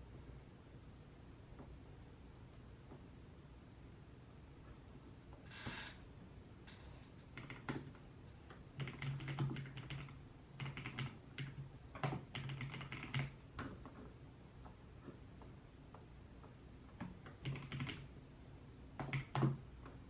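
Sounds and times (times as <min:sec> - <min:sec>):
typing on computer keyboard: 0:06.7 - 0:14.8, 0:16.9 - 0:18.1, 0:19.0 - 0:20.0.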